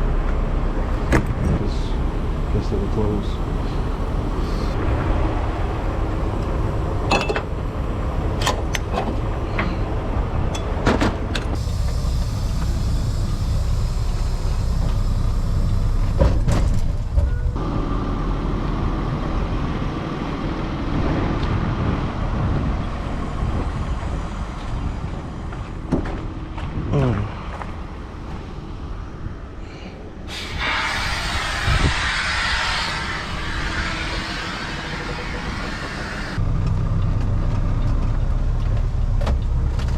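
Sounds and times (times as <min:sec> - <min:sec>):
heavy diesel machinery rumbling: 0:00.0 - 0:39.9
hiss: 0:01.7 - 0:04.8, 0:11.6 - 0:16.4, 0:30.3 - 0:36.4
metal clanks and knocks: 0:07.1 - 0:07.5.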